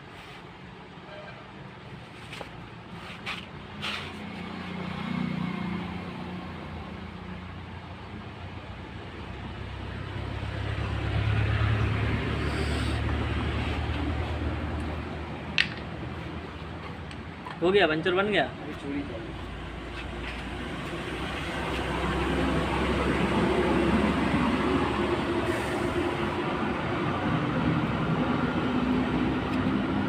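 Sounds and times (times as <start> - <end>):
traffic engine hum: 0.0 - 30.0.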